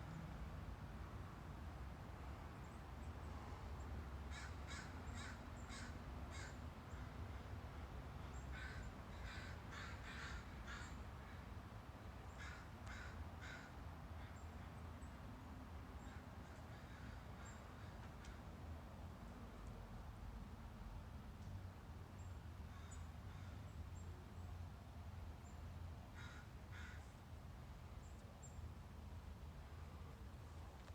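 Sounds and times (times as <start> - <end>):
crows cawing: 4.3 - 7.0, 8.5 - 11.4, 12.4 - 14.4, 16.0 - 18.4, 22.7 - 23.6, 26.1 - 27.1.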